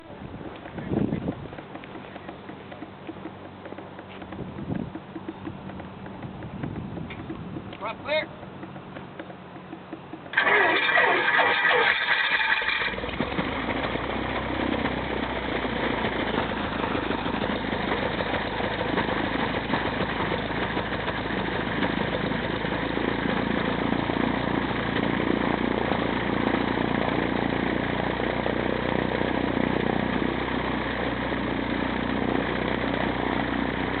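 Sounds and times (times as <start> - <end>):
aircraft engine idling: 0.0 - 34.0
aircraft engine starter cranking: 10.2 - 14.0.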